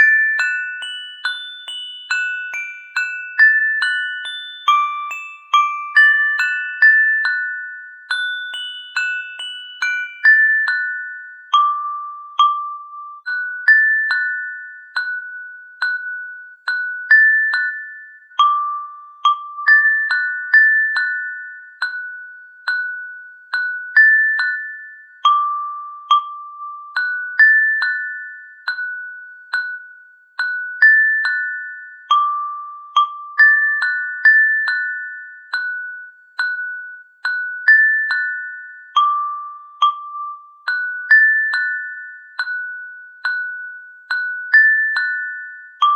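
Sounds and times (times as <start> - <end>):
glockenspiel-like bell melody: 0.0 - 45.9.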